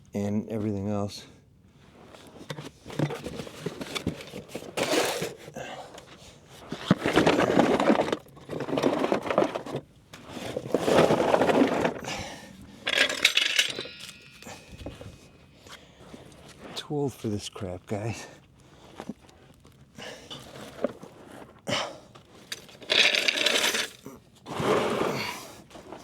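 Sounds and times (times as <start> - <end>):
scraping and rustling: 1.8 - 16.9, 18.4 - 26.0
metallic clinking: 12.0 - 15.7.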